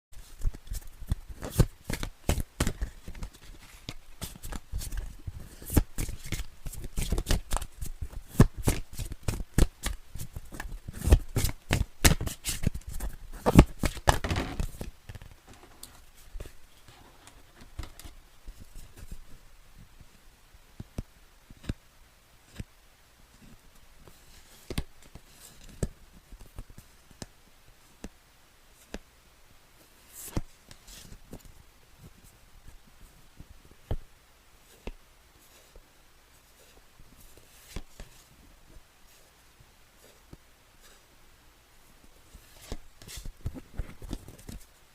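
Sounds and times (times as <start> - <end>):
cards being shuffled: 0.2 - 16.6, 36.6 - 38.3, 42.3 - 44.7
soft rustles of card handling: 0.2 - 20.2, 22.4 - 29.1, 29.8 - 41.2, 41.8 - 44.9.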